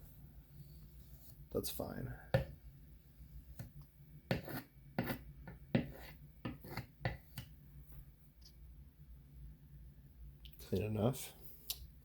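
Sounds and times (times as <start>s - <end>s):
knife scraping peanut butter: 4.3s - 7.5s.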